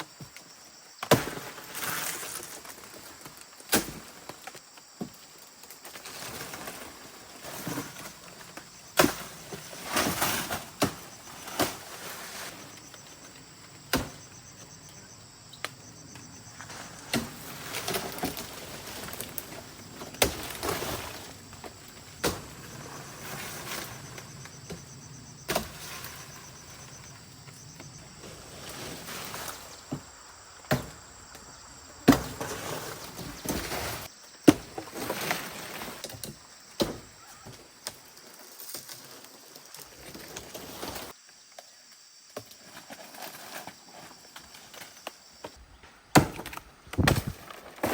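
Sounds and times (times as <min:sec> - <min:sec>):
scraping and rustling: 0:09.2 - 0:13.4, 0:16.6 - 0:24.9, 0:25.5 - 0:30.1.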